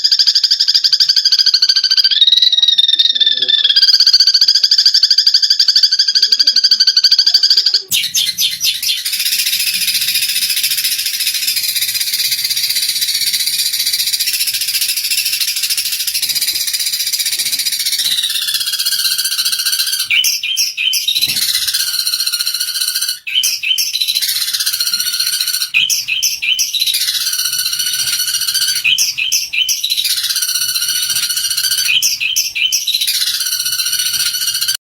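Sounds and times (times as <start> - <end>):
sparrows chirping chatter: 7.1 - 34.8
sparrows pulsed trill: 7.9 - 34.8.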